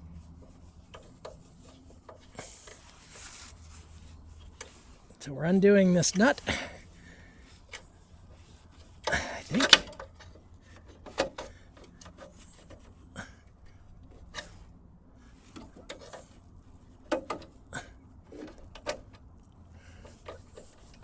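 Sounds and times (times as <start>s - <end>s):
wrench metallic clicks and scrapes: 0.4s - 5.2s, 7.4s - 13.0s, 15.4s - 17.6s, 18.3s - 21.0s.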